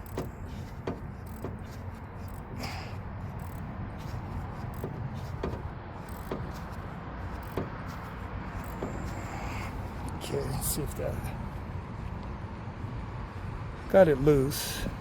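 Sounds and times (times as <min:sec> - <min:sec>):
steady low hum: 0:00.0 - 0:14.1.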